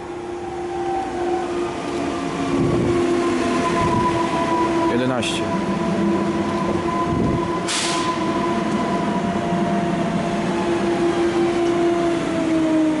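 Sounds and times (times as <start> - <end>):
train rumbling: 0.0 - 13.0
electric train motor whine: 5.6 - 13.0
brief hiss: 7.7 - 8.1.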